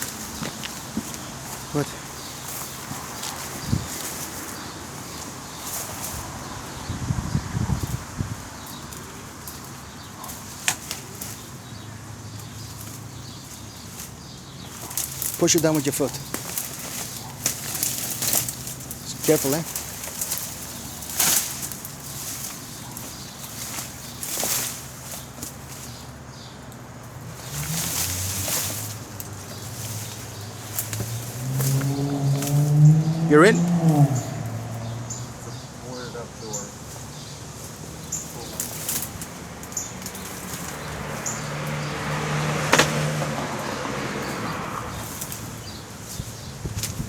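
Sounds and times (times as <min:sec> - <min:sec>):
brush rustling underfoot: 0:00.0 - 0:47.0
car passing: 0:00.0 - 0:47.0
sharp knock: 0:42.7 - 0:43.1.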